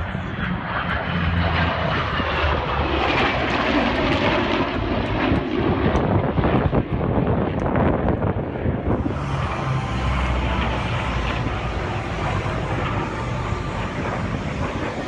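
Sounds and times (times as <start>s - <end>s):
aircraft engine noise: 0.0s - 15.0s
wind on microphone: 4.7s - 15.0s.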